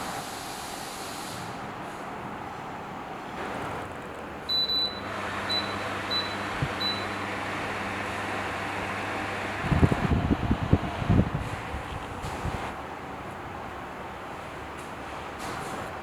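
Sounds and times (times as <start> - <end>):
air cooler fan rushing air: 0.0 - 13.9
control panel beeps: 4.5 - 7.2.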